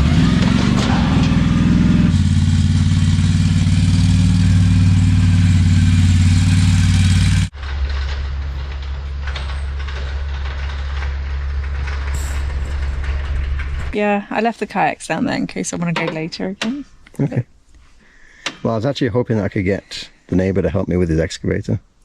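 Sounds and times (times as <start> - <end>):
heavy engine running: 0.0 - 16.3.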